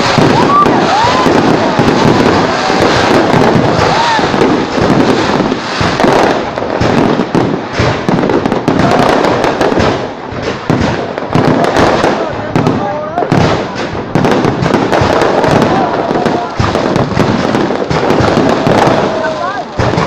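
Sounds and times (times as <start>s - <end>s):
fireworks banging and crackling: 0.0s - 20.0s.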